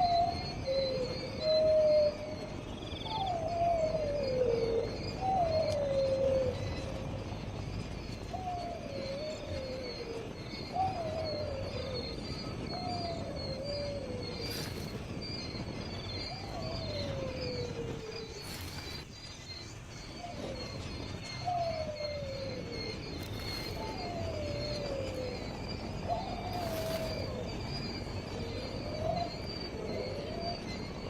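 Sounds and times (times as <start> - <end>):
high insect trill: 0.0 - 31.0
low whistled call sliding downward: 20.2 - 31.0.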